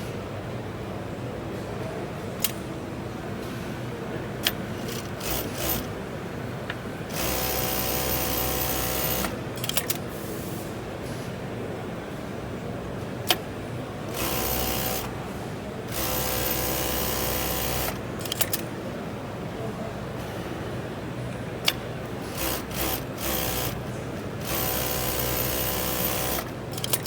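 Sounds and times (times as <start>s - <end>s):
sewing machine stitching: 4.4s - 5.9s, 7.1s - 9.9s, 14.1s - 15.2s, 15.9s - 18.6s, 22.2s - 23.8s, 24.4s - 27.0s.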